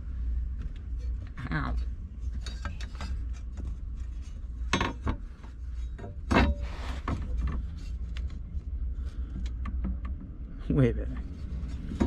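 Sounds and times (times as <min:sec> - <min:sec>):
steady low hum: 0:00.0 - 0:12.0
knocks and clanks of tools: 0:04.7 - 0:07.7
short scraping rub: 0:06.6 - 0:07.1.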